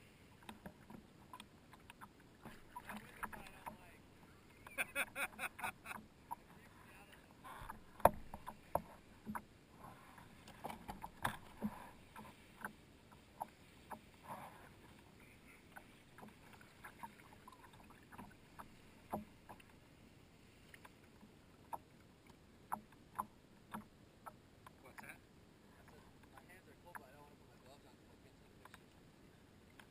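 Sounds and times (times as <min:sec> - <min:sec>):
kayak paddle knocks and splashes: 0:00.4 - 0:03.9, 0:07.6 - 0:09.5, 0:10.3 - 0:19.8.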